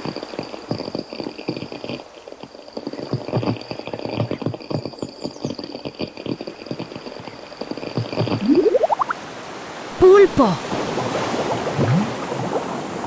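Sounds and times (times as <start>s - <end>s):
faint high tone: 8.4s - 9.1s.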